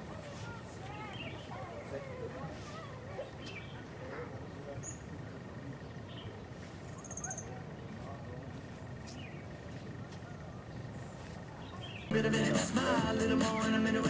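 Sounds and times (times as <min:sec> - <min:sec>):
bird chirps: 0:00.0 - 0:12.1
low steady rumble: 0:00.0 - 0:14.0.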